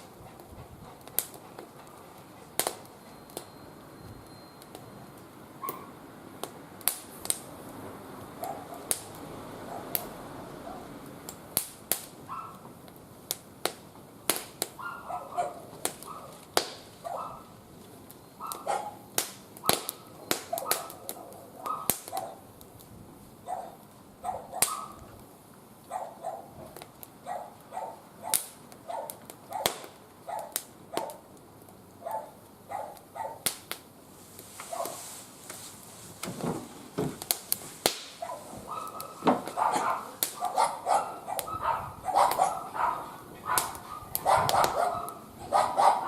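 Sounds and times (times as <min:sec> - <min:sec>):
wood fire crackling: 0:00.0 - 0:46.0
dog barking: 0:05.6 - 0:06.0, 0:08.4 - 0:08.9, 0:09.6 - 0:10.0, 0:10.6 - 0:10.9, 0:12.3 - 0:12.6, 0:14.8 - 0:16.4, 0:17.0 - 0:17.5, 0:18.4 - 0:19.9, 0:20.5 - 0:22.5, 0:23.4 - 0:25.1, 0:25.9 - 0:31.2, 0:32.0 - 0:33.4, 0:34.7 - 0:35.0, 0:38.2 - 0:46.0.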